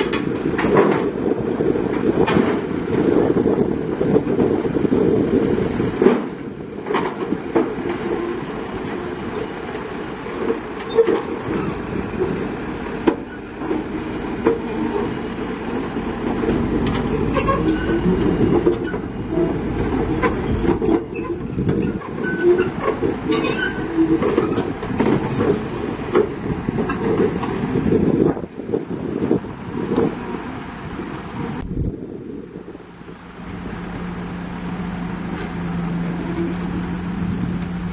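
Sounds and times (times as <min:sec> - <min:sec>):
steel tracks clanking and squealing: 0:00.0 - 0:28.4, 0:33.0 - 0:37.9
sharp clicks and squeaks: 0:13.0 - 0:26.3.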